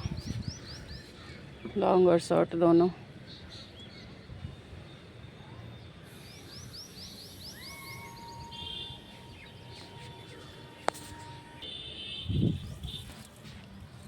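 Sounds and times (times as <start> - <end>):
long steady tone: 4.0 - 13.3.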